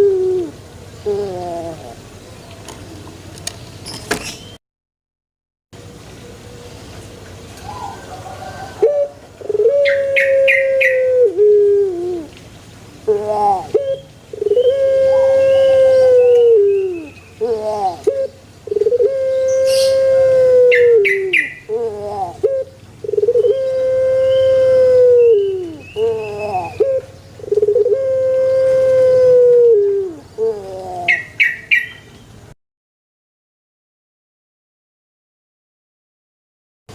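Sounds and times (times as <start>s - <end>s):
turtle dove cooing: 0.0s - 3.3s, 5.9s - 12.4s, 13.0s - 32.0s.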